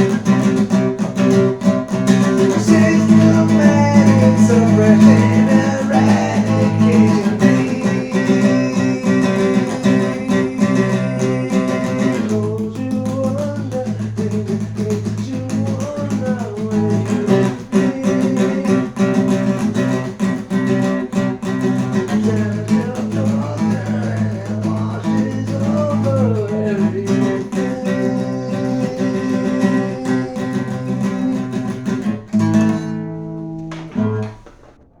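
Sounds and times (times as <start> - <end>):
guitar music: 0.0 - 35.0.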